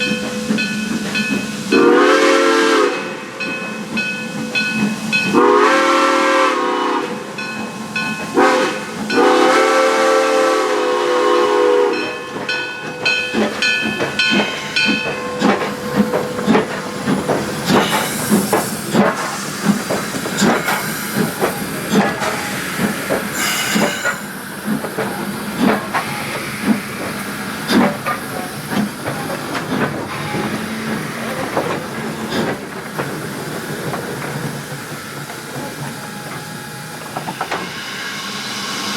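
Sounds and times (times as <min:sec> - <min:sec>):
steam locomotive exhaust chuffing: 0:00.0 - 0:38.9
steam whistle blasts: 0:01.7 - 0:03.2, 0:05.3 - 0:07.2, 0:08.4 - 0:12.2
steam hissing: 0:13.4 - 0:38.9.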